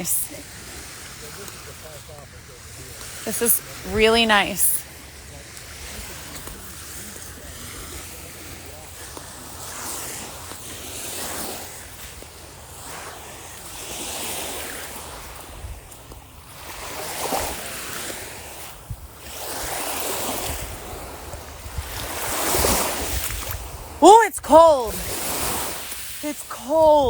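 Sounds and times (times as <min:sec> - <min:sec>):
small waves breaking on a beach: 0:00.0 - 0:27.0
wind on the microphone: 0:05.7 - 0:26.2.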